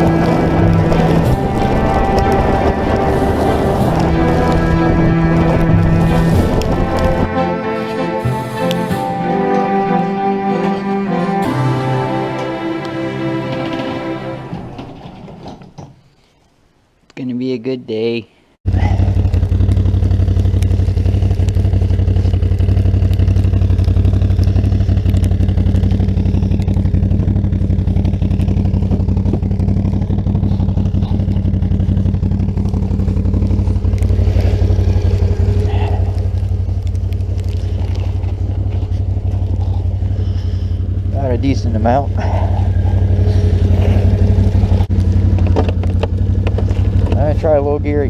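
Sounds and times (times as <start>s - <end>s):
engine running steadily: 0.0s - 7.5s.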